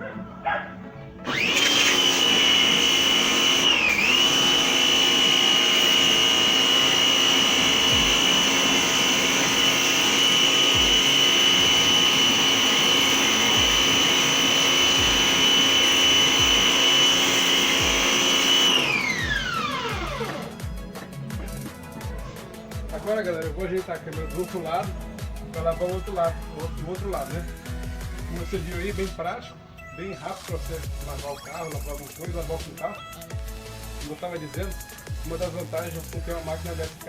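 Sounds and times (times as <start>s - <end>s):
pressure washer motor whine: 1.2s - 21.5s.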